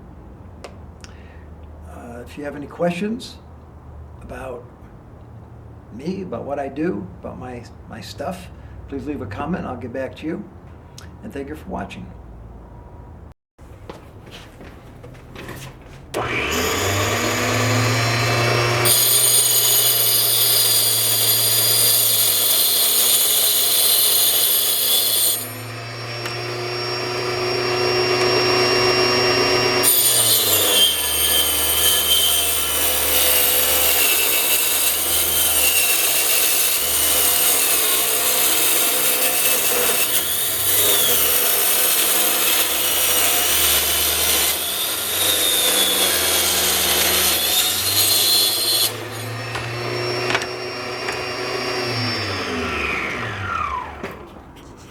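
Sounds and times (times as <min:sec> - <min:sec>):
saw rasping through wood: 0:16.2 - 0:53.9
table saw motor hum: 0:16.2 - 0:54.3.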